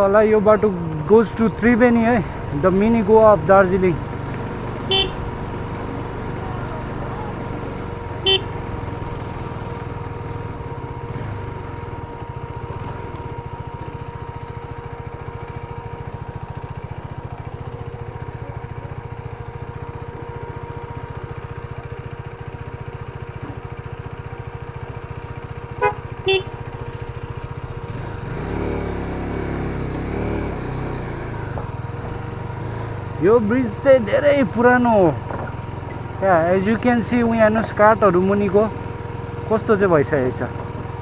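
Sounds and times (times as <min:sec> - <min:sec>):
motorcycle engine running: 0:00.0 - 0:41.0
motorcycle horn toots: 0:04.8 - 0:05.4, 0:08.2 - 0:08.8, 0:25.7 - 0:26.8.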